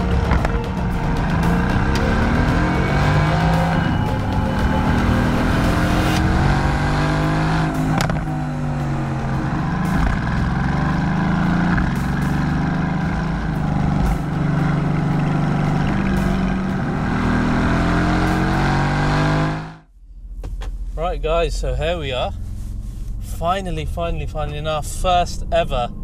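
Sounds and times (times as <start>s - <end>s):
exhaust cracks: 0.0s - 25.8s
car engine revving: 0.0s - 26.0s.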